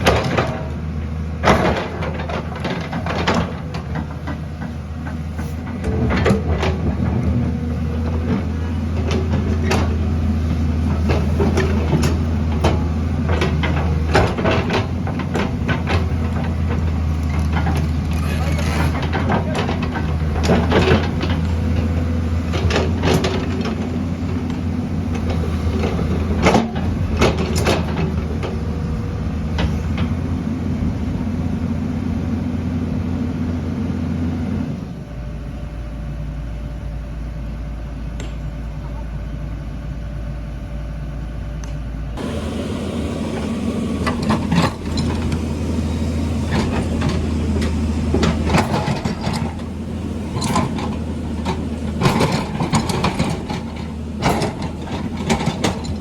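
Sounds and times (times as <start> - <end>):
heavy diesel engine running: 0.0 - 56.0
metallic clanks and knocks: 42.2 - 56.0.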